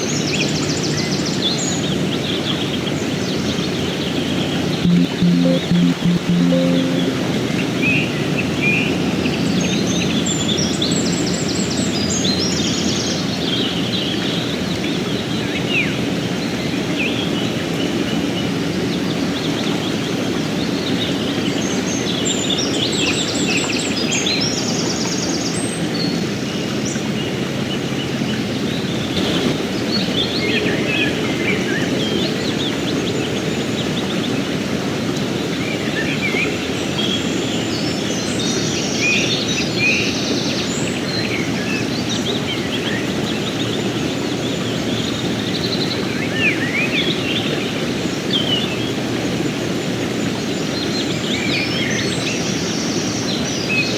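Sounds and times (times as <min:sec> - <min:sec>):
songbird chirping: 0:04.9 - 0:07.3.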